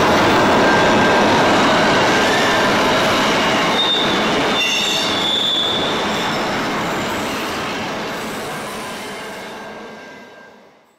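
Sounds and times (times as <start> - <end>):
freight train rolling on rails: 0.0 - 10.9
high wheel squeal: 1.6 - 7.3.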